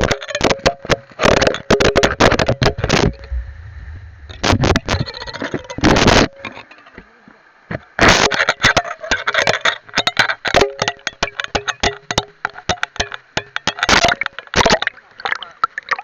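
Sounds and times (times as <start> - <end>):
camera knocking against rocks underwater: 9.5 - 14.9.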